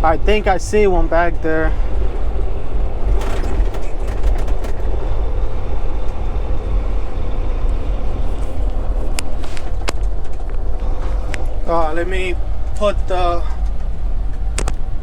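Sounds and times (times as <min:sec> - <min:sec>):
diesel truck engine rumbling: 0:00.0 - 0:15.0
clicks and rattles: 0:03.0 - 0:05.0.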